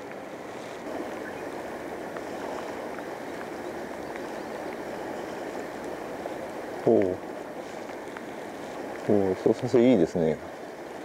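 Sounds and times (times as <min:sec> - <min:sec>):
river current rushing: 0:00.0 - 0:11.0
faint ticks: 0:02.1 - 0:09.1.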